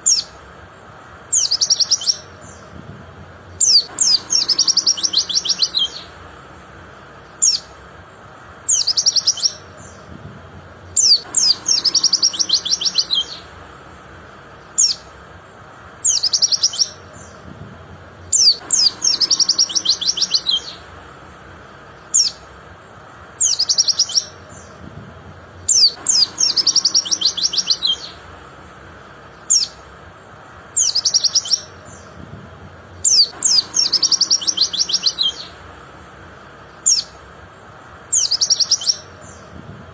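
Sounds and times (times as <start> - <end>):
bird chirping: 0.0 - 2.8, 3.4 - 10.2, 10.8 - 17.6, 18.2 - 24.9, 25.5 - 32.3, 32.9 - 35.8, 36.4 - 39.6.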